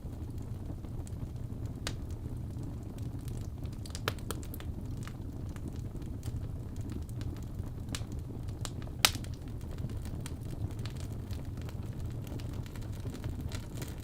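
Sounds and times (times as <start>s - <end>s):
fire rumbling and crackling: 0.0s - 14.0s.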